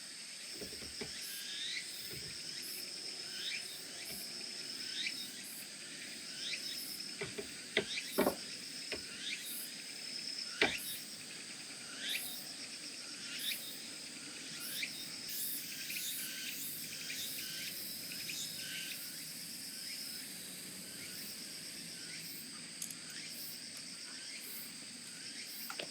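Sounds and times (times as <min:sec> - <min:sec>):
crickets chirping: 0:00.0 - 0:25.9
insect trill: 0:00.0 - 0:25.9
insects whining: 0:00.0 - 0:25.9
sharp knocks: 0:07.2 - 0:09.0.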